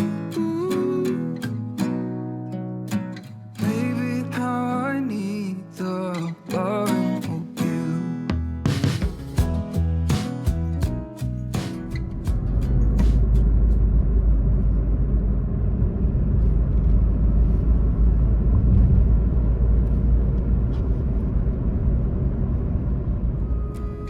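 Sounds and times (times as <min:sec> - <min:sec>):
car engine and road noise: 0:08.6 - 0:24.0.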